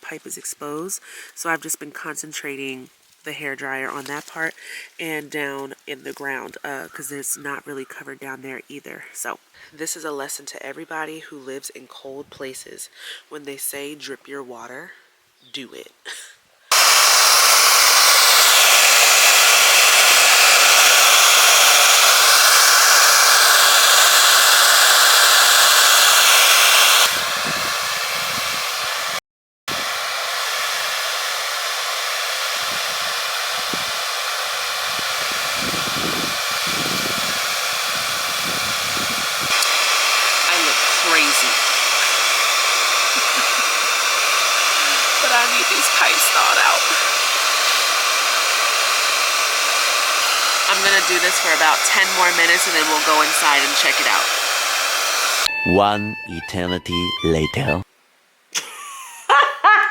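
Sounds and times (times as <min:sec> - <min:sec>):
hair dryer blowing: 0:16.7 - 0:55.6.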